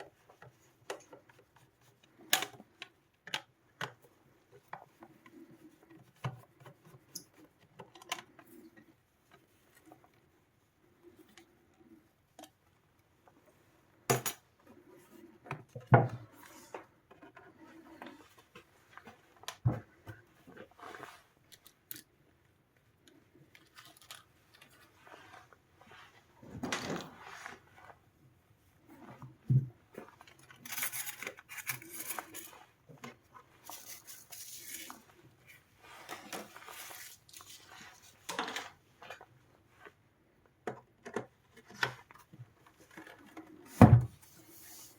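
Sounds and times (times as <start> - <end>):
scraping and rustling: 23.6 - 28.1, 28.7 - 40.0, 41.9 - 44.9.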